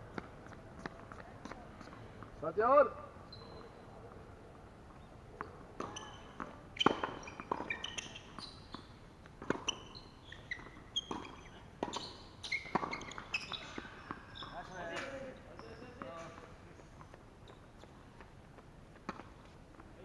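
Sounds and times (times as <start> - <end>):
tennis balls bouncing: 0.1 - 2.4, 4.9 - 19.9
shoes squeaking on court: 3.2 - 4.2, 4.8 - 20.0
tennis balls struck by rackets: 5.4 - 10.0, 10.6 - 15.3.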